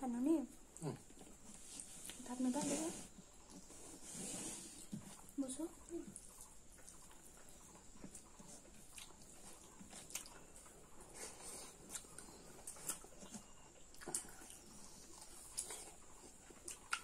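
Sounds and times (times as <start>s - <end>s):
wet chewing and lip-smacking: 5.1s - 17.0s.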